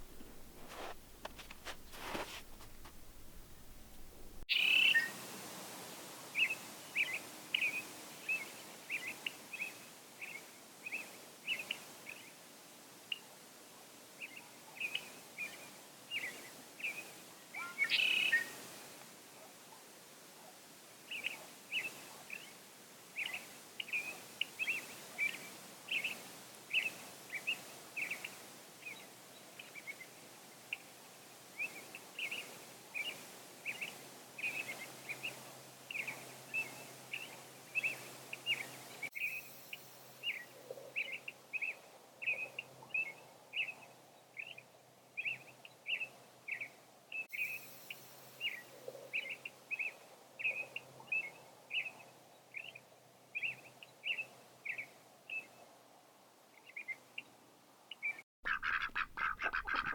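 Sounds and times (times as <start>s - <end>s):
small birds chirping: 0.0s - 5.1s, 57.9s - 59.9s.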